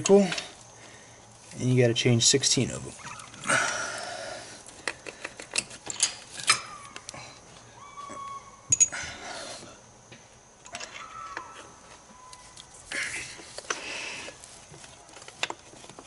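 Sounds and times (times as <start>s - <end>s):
hand tools clicking and knocking: 4.7s - 7.1s.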